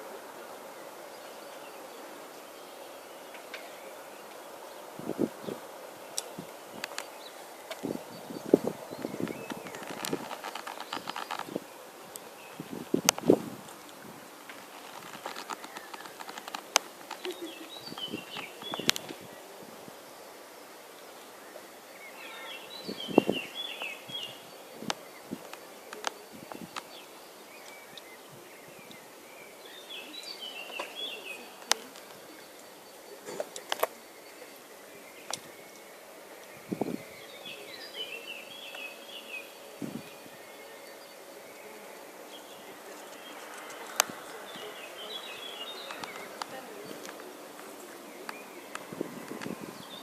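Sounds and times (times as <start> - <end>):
songbird twittering: 0.0 - 50.0
sharp clicks: 9.0 - 12.3, 13.0 - 19.2.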